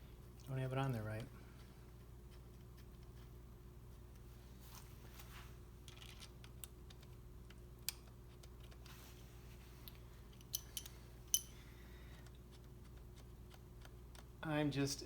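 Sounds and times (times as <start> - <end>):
low steady hum: 0.0 - 15.0
metal parts clicking and tapping: 9.9 - 11.6.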